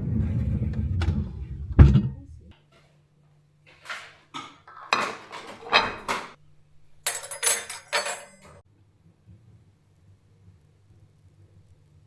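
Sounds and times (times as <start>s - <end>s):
dishes and cutlery clinking: 3.7s - 8.6s.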